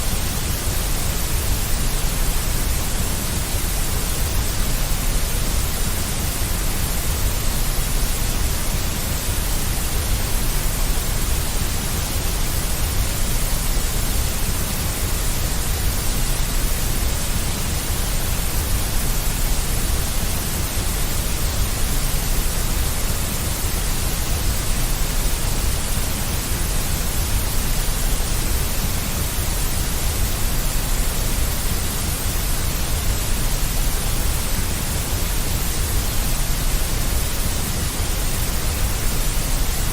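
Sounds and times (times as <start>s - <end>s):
deep white noise: 0.0s - 39.9s.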